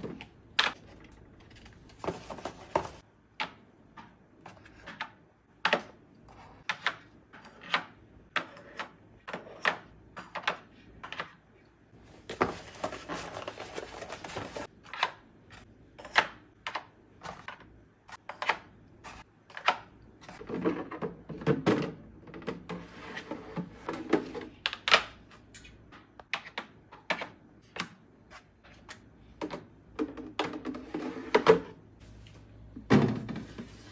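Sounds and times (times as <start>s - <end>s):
food containers clicking and knocking: 28.9s - 31.8s.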